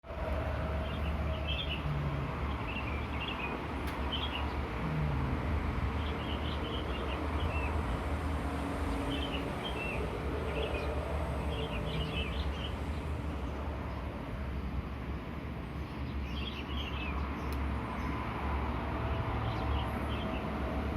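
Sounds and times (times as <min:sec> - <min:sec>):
small birds chirping: 0:00.8 - 0:07.9, 0:08.9 - 0:14.8, 0:15.6 - 0:18.2.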